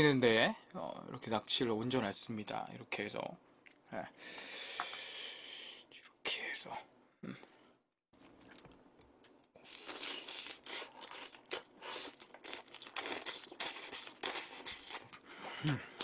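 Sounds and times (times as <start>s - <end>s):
crunchy chewing of pizza: 9.6s - 15.3s.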